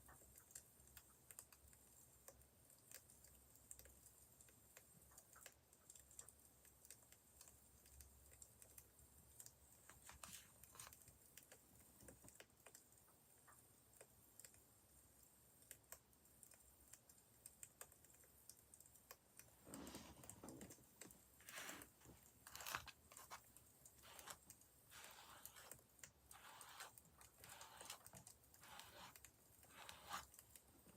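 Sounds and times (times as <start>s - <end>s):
faint fire crackling: 0.0s - 30.9s
rustling: 19.6s - 30.9s.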